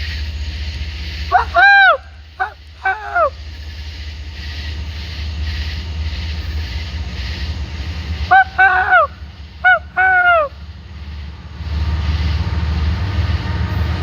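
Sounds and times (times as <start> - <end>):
low engine rumble: 0.0 - 14.0
geese honking: 1.3 - 3.4, 8.2 - 10.6.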